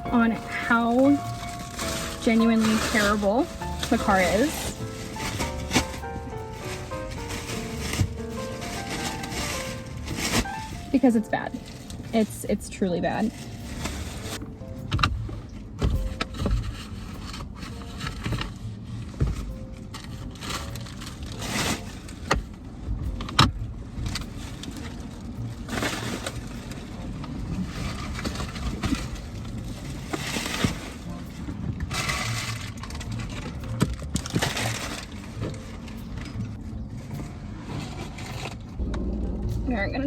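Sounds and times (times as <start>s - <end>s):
short rustling bursts: 0.0s - 12.5s
steady low rumble: 0.0s - 21.4s, 33.1s - 40.0s.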